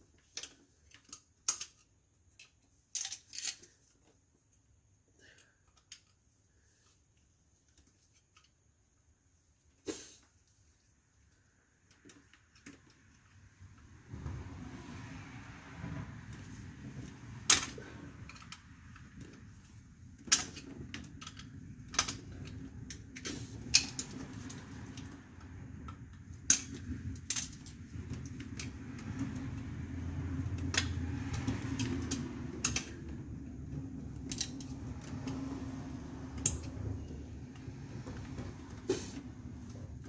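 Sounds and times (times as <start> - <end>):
low steady rumble: 13.1 - 40.0.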